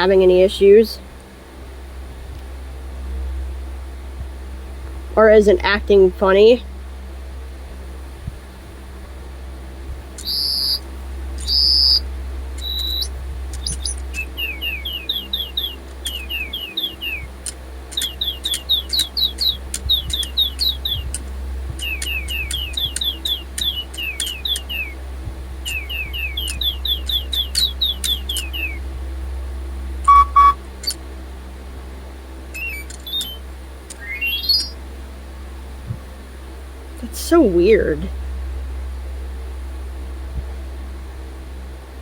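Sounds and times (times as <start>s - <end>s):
electronic high chirps: 10.2s - 10.8s, 11.4s - 12.0s, 12.6s - 17.3s, 18.0s - 21.2s, 21.8s - 25.0s, 25.7s - 28.8s, 30.0s - 31.0s, 32.6s - 34.8s
toy electronic beeps: 10.2s - 10.8s, 11.4s - 12.0s, 12.6s - 14.0s, 30.1s - 31.0s, 32.6s - 34.7s.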